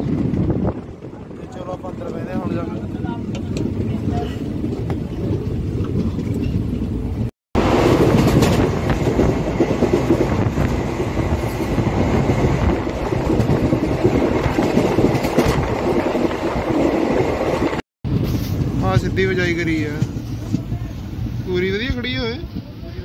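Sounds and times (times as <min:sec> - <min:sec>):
train wheels rumbling on track: 0:00.0 - 0:23.0.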